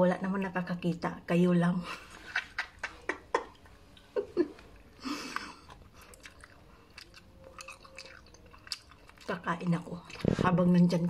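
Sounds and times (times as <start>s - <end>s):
crackly chewing: 4.6s - 11.0s
crunching bites of dry toast: 5.6s - 9.4s.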